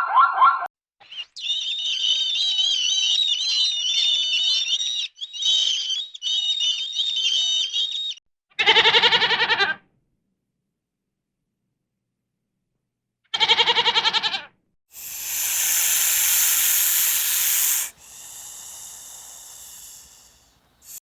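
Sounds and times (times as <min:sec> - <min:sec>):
songbird warbling: 0:15.0 - 0:21.0.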